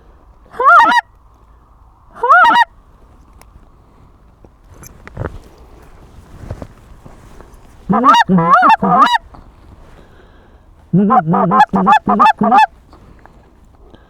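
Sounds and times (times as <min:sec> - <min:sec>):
goose call honks: 0:00.5 - 0:01.1, 0:02.2 - 0:02.7, 0:07.9 - 0:09.2, 0:10.9 - 0:12.7.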